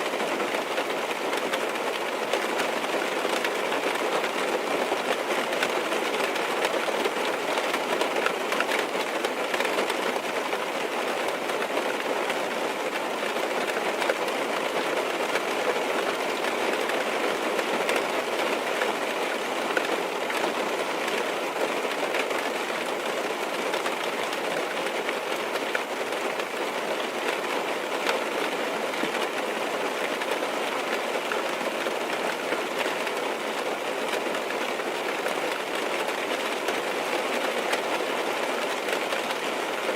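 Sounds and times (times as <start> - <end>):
rain on a car roof: 0.0 - 39.9.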